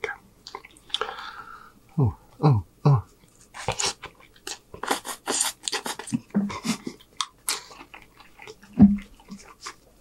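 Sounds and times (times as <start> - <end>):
wet chewing and lip-smacking: 0.4 - 1.1, 3.2 - 10.0.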